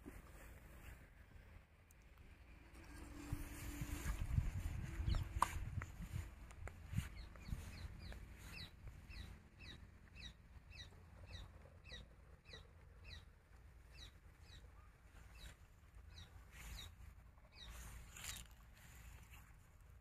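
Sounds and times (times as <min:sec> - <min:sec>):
faint low rumble: 0:00.0 - 0:20.0
bird chirping: 0:02.7 - 0:18.5.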